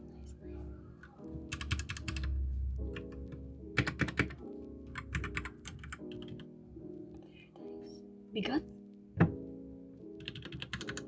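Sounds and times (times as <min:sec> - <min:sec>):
background music: 0:00.0 - 0:11.0
mechanical keyboard typing: 0:01.5 - 0:02.3, 0:03.8 - 0:06.4, 0:10.2 - 0:11.0.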